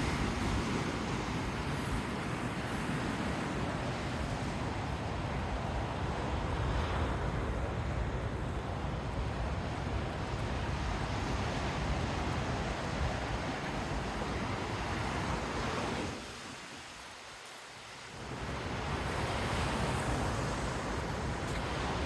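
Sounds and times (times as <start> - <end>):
wind buffeting microphone: 0.0 - 17.0
ocean surf: 0.0 - 22.0.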